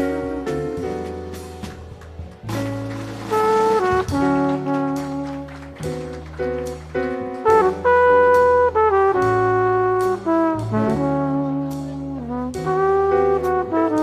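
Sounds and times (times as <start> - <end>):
bass: 0.0 - 14.0
piano: 0.0 - 14.0
drums with cymbal strikes: 0.5 - 1.9
flugelhorn jazz melody: 2.4 - 14.0.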